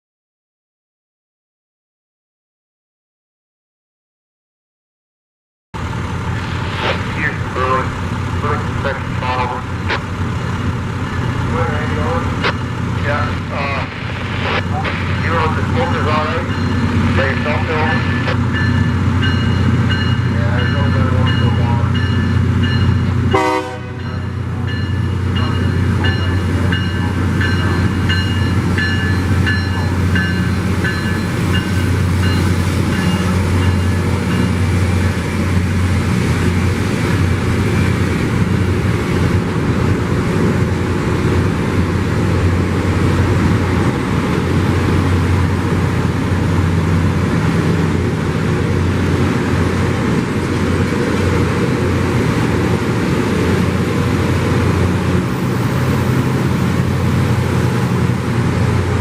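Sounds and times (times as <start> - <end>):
deep hum: 5.8 - 23.4
rail grinder engines and grinding: 5.8 - 59.0
rhythmic high ringing: 16.2 - 17.2, 17.8 - 23.2, 24.0 - 34.6.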